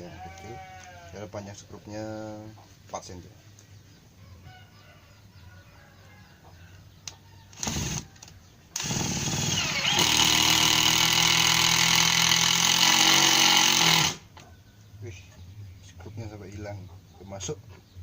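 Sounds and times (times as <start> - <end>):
impact driver whining and hammering: 7.6 - 8.1, 8.8 - 14.3.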